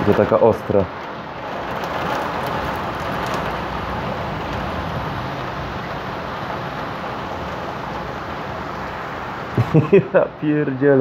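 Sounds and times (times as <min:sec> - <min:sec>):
heavy rain: 0:00.0 - 0:11.0.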